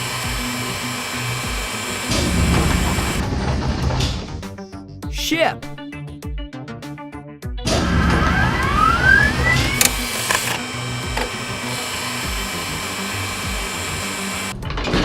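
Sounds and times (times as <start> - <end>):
electric whirring: 0.0 - 3.2, 7.7 - 14.6
mechanical whine rising in pitch: 0.0 - 3.2, 7.7 - 14.5.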